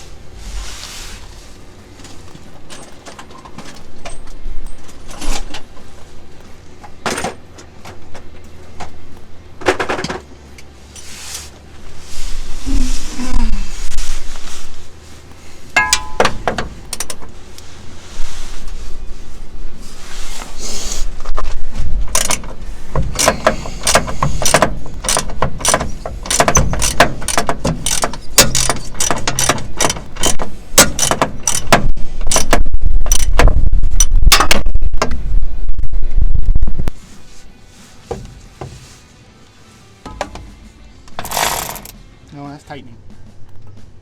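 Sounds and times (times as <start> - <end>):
metal tools knocking: 15.8 - 16.7, 23.0 - 33.3
hand ratchet clicking: 22.1 - 33.4.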